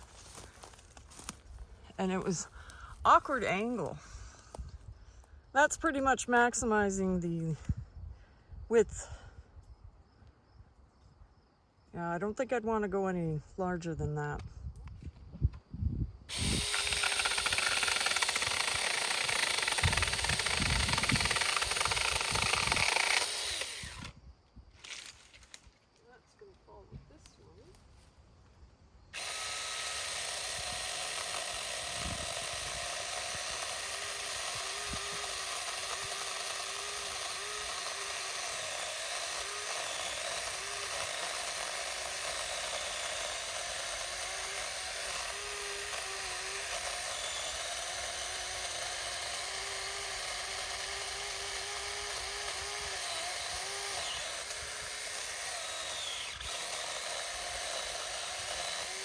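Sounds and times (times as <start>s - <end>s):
electric chainsaw cutting wood: 16.3s - 24.2s, 29.2s - 59.0s.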